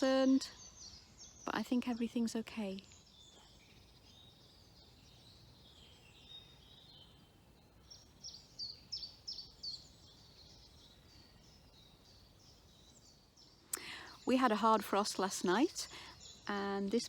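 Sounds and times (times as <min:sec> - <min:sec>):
faint songbirds singing: 0:00.0 - 0:17.0.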